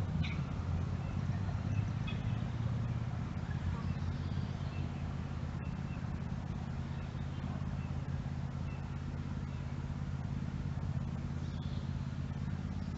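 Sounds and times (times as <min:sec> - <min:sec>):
low mechanical hum: 0:00.0 - 0:12.9
faint bird chirps: 0:00.2 - 0:02.7, 0:03.4 - 0:06.2, 0:06.8 - 0:09.9, 0:11.3 - 0:12.9.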